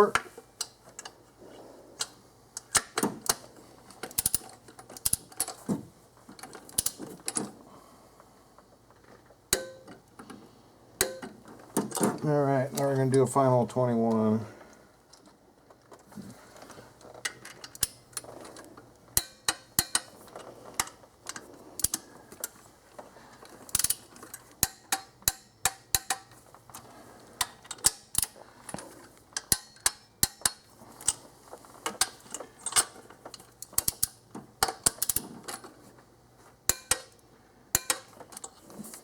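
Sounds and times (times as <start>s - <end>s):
ratcheting torque wrench clicking: 4.1s - 5.4s.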